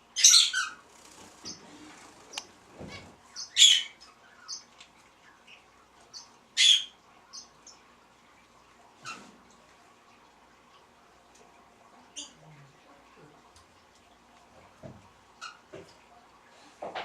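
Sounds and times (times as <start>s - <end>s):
harsh bird calls: 0.0s - 4.7s
birds chirping: 0.0s - 9.2s.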